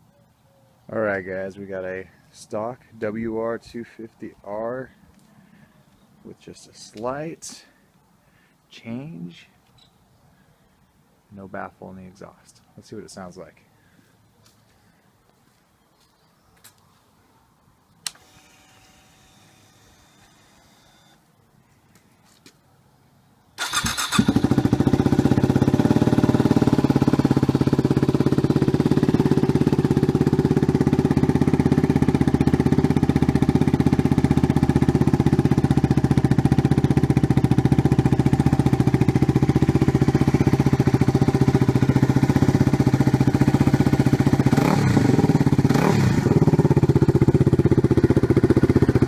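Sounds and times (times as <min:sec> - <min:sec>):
motorcycle engine starting and idling: 0:23.6 - 0:49.0.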